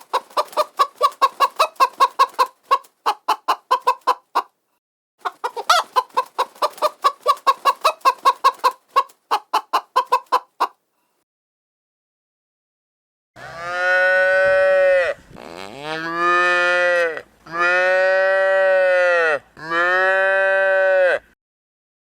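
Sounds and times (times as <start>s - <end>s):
cow mooing: 13.4s - 21.2s.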